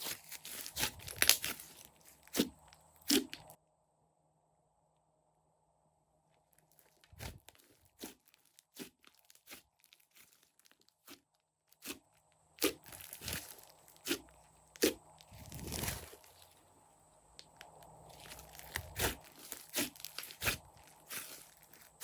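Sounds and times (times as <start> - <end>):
slime crackling squish: 0.0 - 3.6, 6.6 - 16.7, 17.3 - 22.0.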